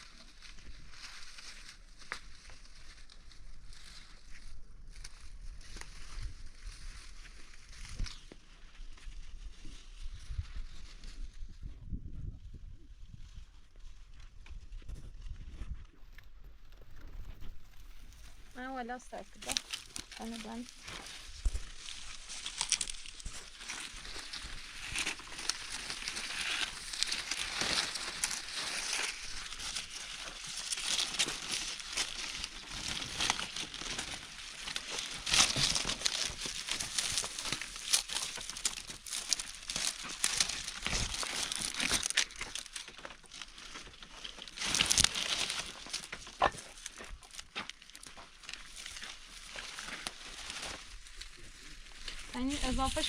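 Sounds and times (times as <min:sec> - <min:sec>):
material crinkling and rustling: 0:13.2 - 0:53.0.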